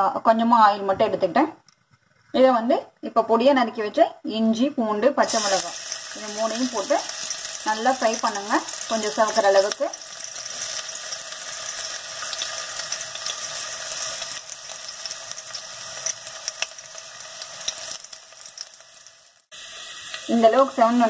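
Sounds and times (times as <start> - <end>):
aromatics sizzling in hot oil: 5.2 - 21.0.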